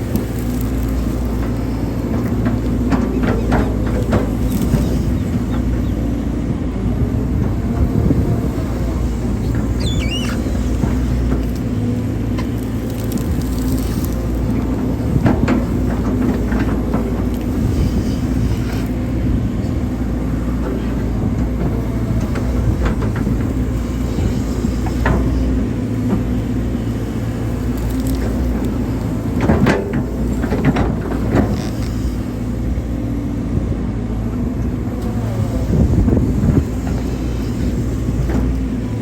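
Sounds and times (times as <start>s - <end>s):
excavator diesel engine running: 0.0s - 39.0s
machine knocks and clanks: 1.2s - 5.8s, 14.5s - 17.8s, 29.2s - 31.7s
brief squeal: 9.8s - 10.8s.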